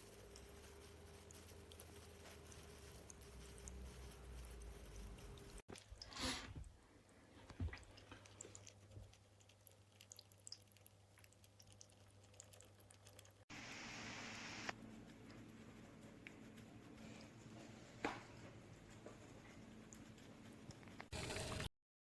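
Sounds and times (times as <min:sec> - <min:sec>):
faint small ticks and clicks: 0:08.0 - 0:21.1
brief hiss: 0:13.5 - 0:14.8.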